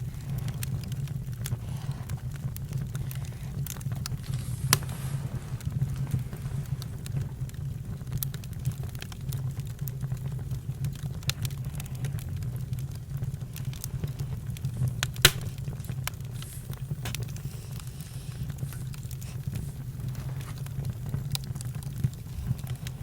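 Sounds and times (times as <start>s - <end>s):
campfire crackling: 0.0s - 23.0s
sharp loud pop: 15.3s - 15.6s.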